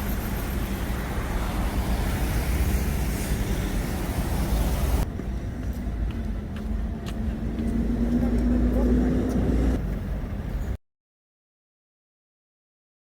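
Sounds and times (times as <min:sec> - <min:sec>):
road vehicles rumbling: 0:00.0 - 0:10.8.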